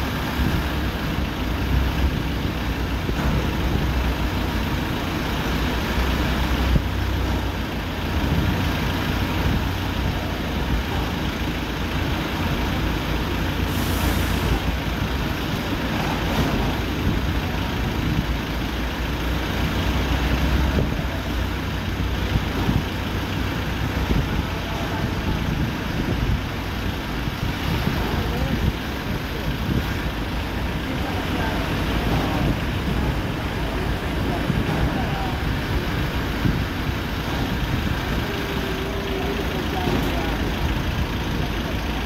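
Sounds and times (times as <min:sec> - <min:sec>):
tractor engine rumbling: 0:00.0 - 0:42.0
brief hiss: 0:13.7 - 0:14.6.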